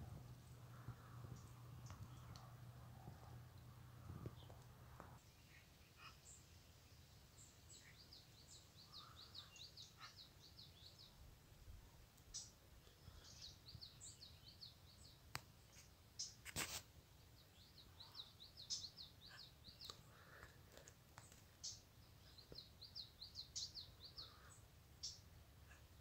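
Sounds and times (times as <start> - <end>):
low outdoor rumble: 0.0 - 5.2
songbird chirping: 0.0 - 26.0.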